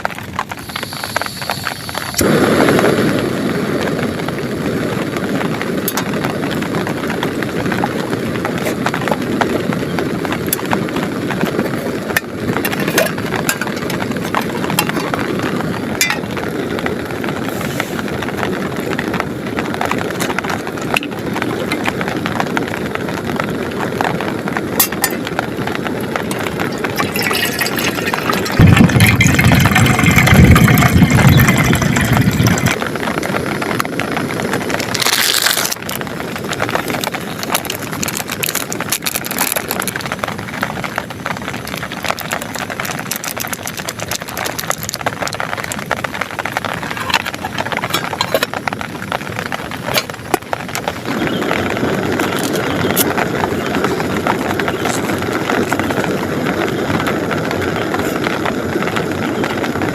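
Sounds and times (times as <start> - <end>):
heavy rain on plastic tarp: 0.0 - 59.9
deep rumble of thunder: 25.4 - 35.0.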